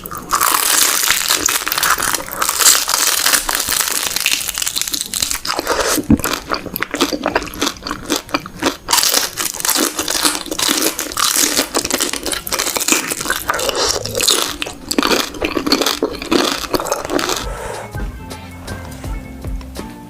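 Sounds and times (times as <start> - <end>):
wet crunchy chewing: 0.0 - 17.8
background music: 17.2 - 20.0.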